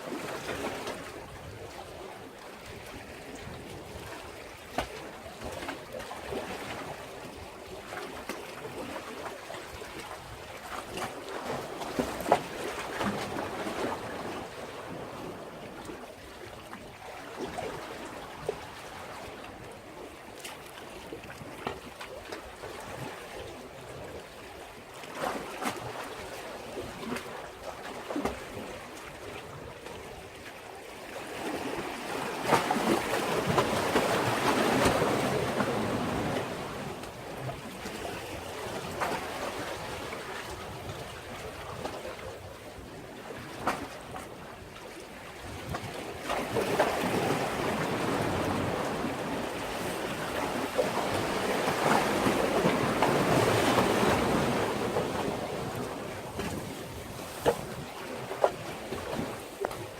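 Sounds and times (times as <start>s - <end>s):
waves washing against a breakwater: 0.0s - 59.9s.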